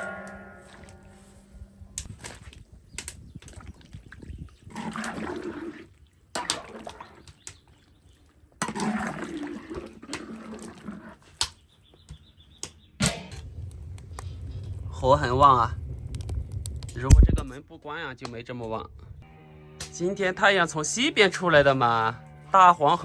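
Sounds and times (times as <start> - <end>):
water pouring and sloshing: 2.0 - 11.4, 13.3 - 17.6.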